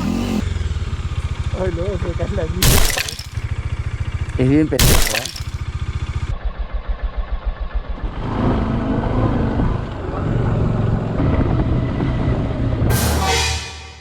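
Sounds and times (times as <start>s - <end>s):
motorcycle engine running: 0.0s - 4.8s, 5.4s - 8.6s.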